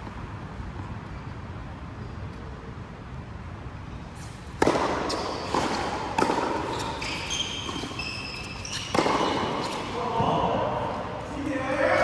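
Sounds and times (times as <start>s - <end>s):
court shoes squeaking: 3.9s - 12.0s
racket striking shuttlecock: 4.5s - 10.3s.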